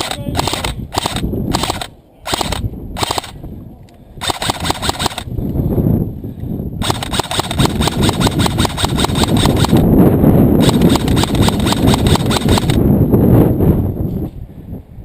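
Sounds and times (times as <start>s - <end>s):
airsoft guns firing bursts: 0.0s - 3.4s, 4.2s - 5.3s, 6.8s - 9.8s, 10.6s - 12.8s.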